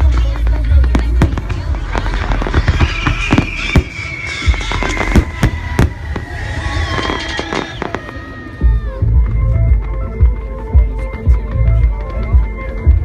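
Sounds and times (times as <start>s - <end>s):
fireworks cracking and banging: 0.0s - 8.6s
low rumble: 0.0s - 9.9s
music: 0.0s - 13.0s.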